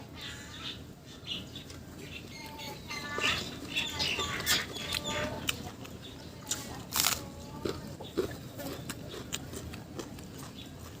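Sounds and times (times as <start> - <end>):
birds chirping: 0.0 - 6.8, 10.3 - 11.0.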